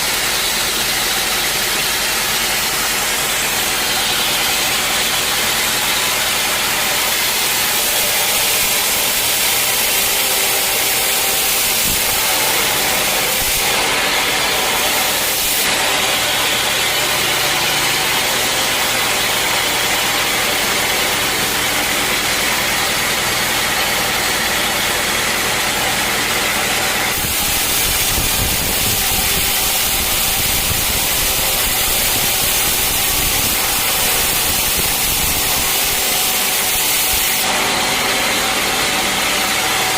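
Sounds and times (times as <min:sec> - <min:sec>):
sawmill engine hum: 0:00.0 - 0:39.9
loud even hiss: 0:07.0 - 0:15.8, 0:27.1 - 0:37.6.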